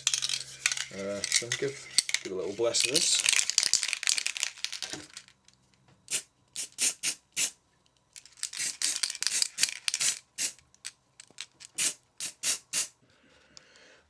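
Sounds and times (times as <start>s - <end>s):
spray paint can hissing: 6.1s - 7.6s, 8.5s - 10.6s, 11.8s - 12.9s.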